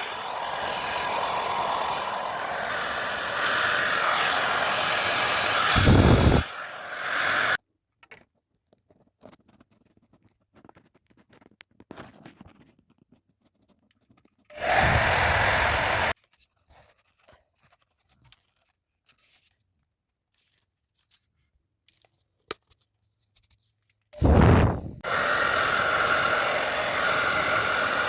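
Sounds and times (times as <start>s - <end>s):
hair dryer blowing: 0.0s - 7.6s, 14.6s - 16.2s, 24.2s - 28.0s.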